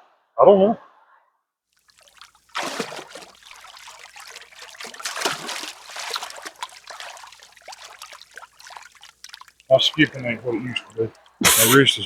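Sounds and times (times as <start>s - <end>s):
stone splashing into water: 1.8s - 11.8s
river water trickling over rocks: 1.8s - 12.0s.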